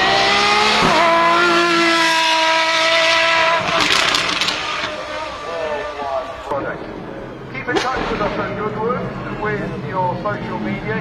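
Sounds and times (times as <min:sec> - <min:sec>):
car engine revving hard: 0:00.0 - 0:05.6
exhaust crackles: 0:00.8 - 0:06.5.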